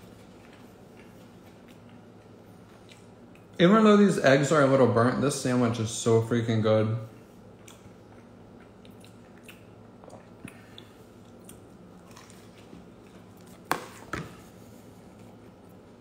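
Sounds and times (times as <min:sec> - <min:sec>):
person chewing with wet clicks: 0:00.0 - 0:03.6, 0:07.5 - 0:13.7.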